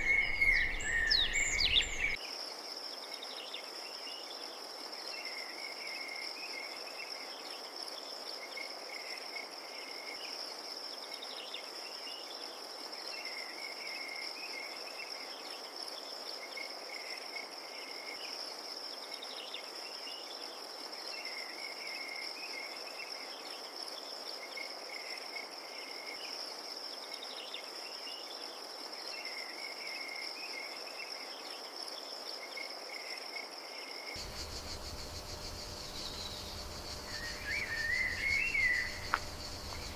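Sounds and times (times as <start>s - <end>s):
lower chirping call: 0.0s - 2.2s, 34.2s - 39.9s
crickets trilling: 0.0s - 39.9s.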